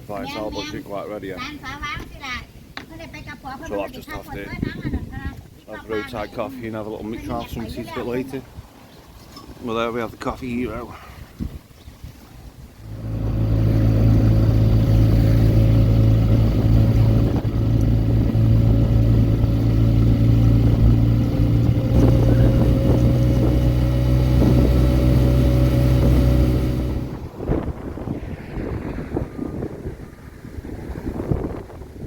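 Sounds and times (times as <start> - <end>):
motorbike engine running: 13.0 - 27.2.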